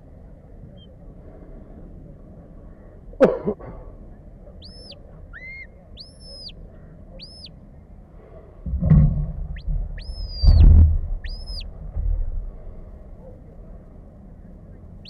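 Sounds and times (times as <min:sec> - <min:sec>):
low rumble: 0:03.8 - 0:15.0
high whistles: 0:04.6 - 0:06.6, 0:09.5 - 0:11.7.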